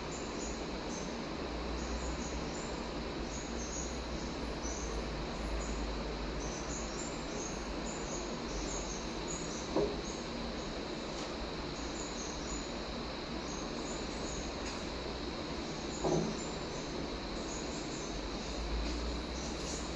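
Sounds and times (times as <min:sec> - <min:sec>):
brief knock: 0:09.7 - 0:10.0, 0:16.0 - 0:16.4.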